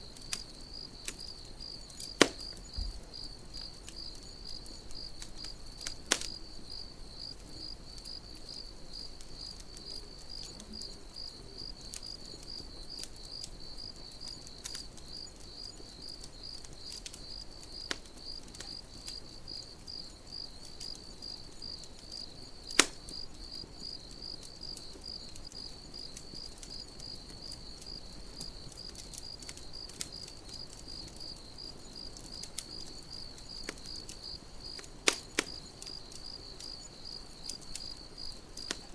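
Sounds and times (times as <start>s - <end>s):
campfire crackling and popping: 0.0s - 38.9s
crickets chirping: 0.0s - 38.9s.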